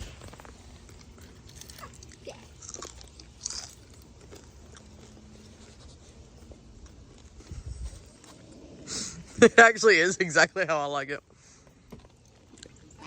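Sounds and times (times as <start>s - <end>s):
person chewing and crunching food: 0.0s - 8.6s.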